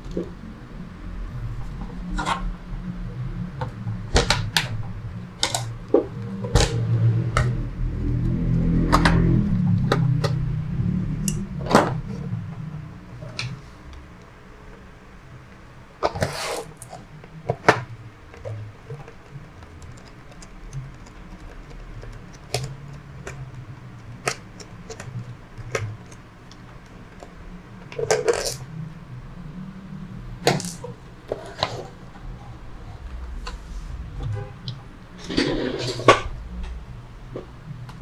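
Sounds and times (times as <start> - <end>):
low hum: 0.0 - 15.9, 28.6 - 38.0.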